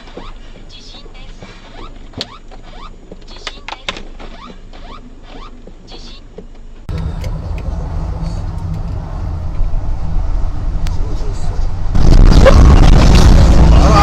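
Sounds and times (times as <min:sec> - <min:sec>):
loud low rumble: 0:06.9 - 0:14.0.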